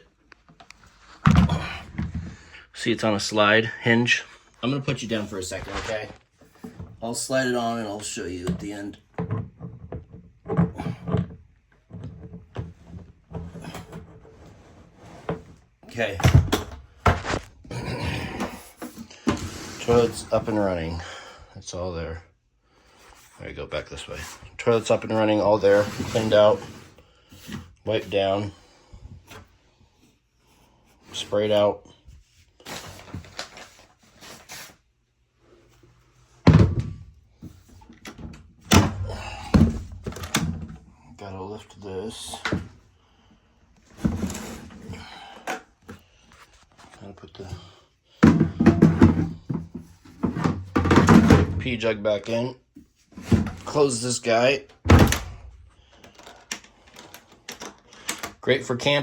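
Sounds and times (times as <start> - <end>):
plastic parts knocking and scraping: 0.4 - 2.6, 5.1 - 20.9, 36.4 - 40.9, 43.8 - 51.8, 52.8 - 54.0, 54.7 - 59.0
plastic rustling scrapes: 24.0 - 27.0.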